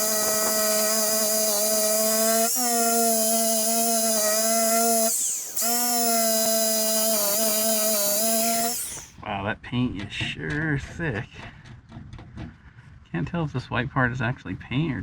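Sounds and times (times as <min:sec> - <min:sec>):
drill wire wheel whine: 0:00.0 - 0:09.1.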